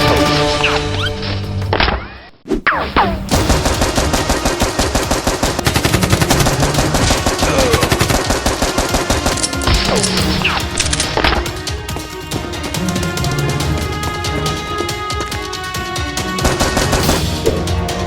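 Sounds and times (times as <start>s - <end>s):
rapid automatic gunfire: 3.3s - 11.1s, 16.4s - 17.3s.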